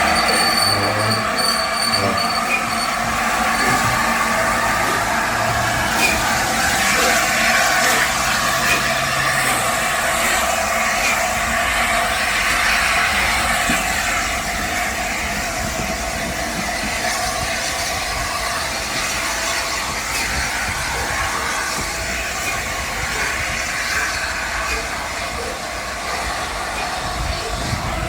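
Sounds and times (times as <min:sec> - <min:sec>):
steam locomotive hissing rumble: 0:00.0 - 0:28.0.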